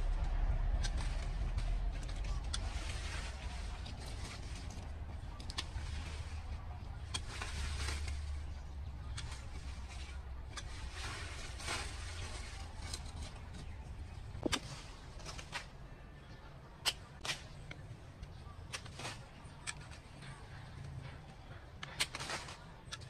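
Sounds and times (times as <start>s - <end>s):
low steady hum: 0.0s - 23.0s
soft rustling: 0.1s - 15.8s.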